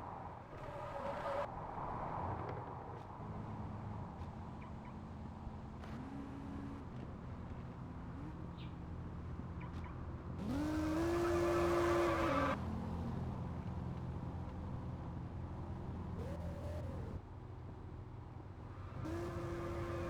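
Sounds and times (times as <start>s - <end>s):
car engine idling and revving: 3.2s - 20.0s.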